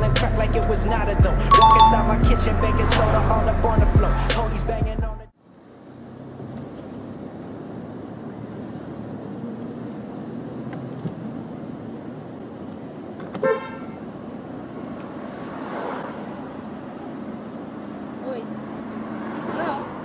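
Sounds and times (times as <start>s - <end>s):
street traffic: 0.0s - 20.0s
car horn toot: 13.4s - 14.0s.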